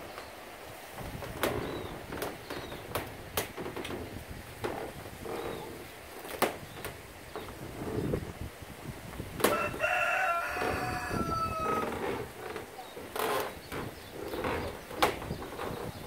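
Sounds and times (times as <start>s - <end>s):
steady background hiss: 0.0s - 16.0s
low bird calls: 1.5s - 3.0s, 5.2s - 8.2s, 9.5s - 16.0s.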